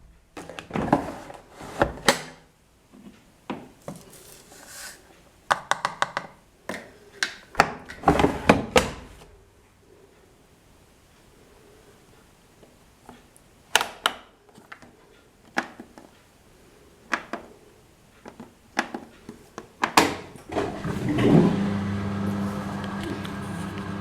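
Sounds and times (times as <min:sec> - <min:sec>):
washing machine motor humming: 0:20.3 - 0:24.0.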